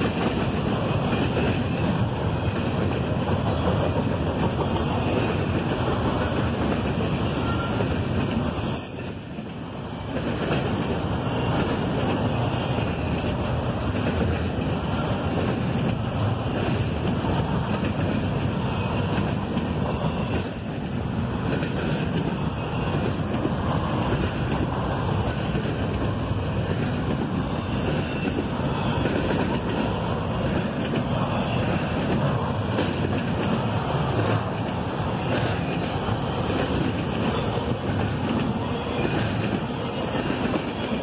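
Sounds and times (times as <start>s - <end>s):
train cars rumbling on steel wheels: 0.0s - 41.0s.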